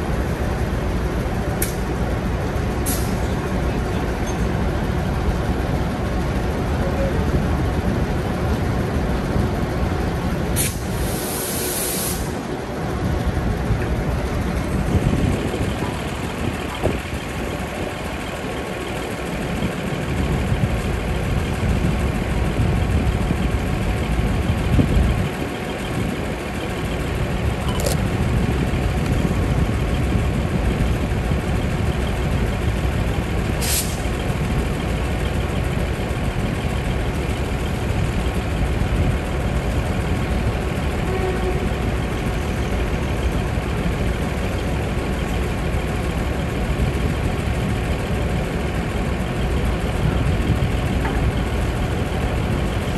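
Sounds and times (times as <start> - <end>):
railcar diesel engines running: 0.0 - 52.9
compressed air hisses: 10.6 - 12.4.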